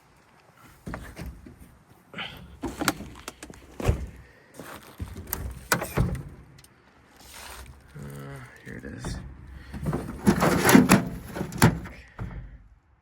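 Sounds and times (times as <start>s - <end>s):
clunks and rattles of rummaging: 0.7s - 6.6s, 9.0s - 12.7s.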